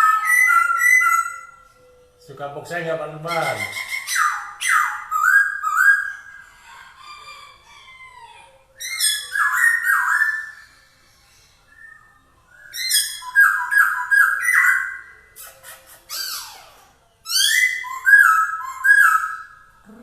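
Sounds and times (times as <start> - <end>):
bird singing whistled phrases: 0.0 - 1.7, 3.4 - 6.3, 8.8 - 19.9.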